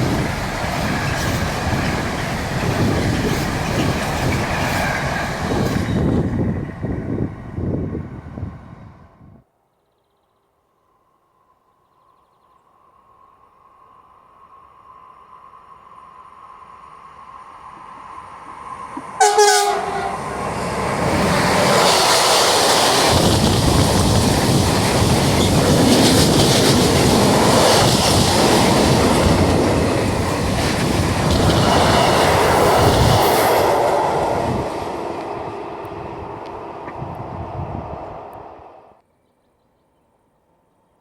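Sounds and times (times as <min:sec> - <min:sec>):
train rumbling and wheel clatter: 0:00.0 - 0:09.4, 0:14.1 - 0:39.0
train horn blast: 0:19.2 - 0:20.6.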